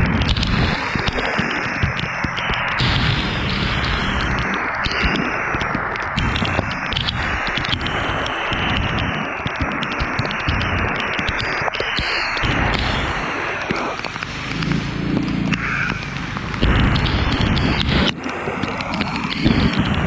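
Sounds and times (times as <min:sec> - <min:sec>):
raindrops ticking on microphone: 0:00.0 - 0:20.0
wind rushing on microphone: 0:00.0 - 0:20.0.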